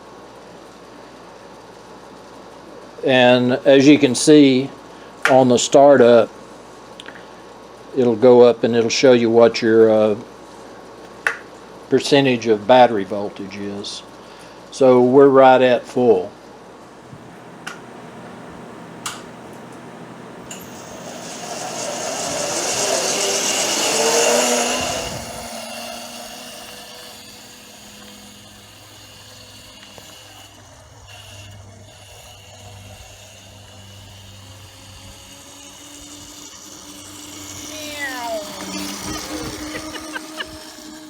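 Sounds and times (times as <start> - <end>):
electric motor whirring: 16.9 - 41.0.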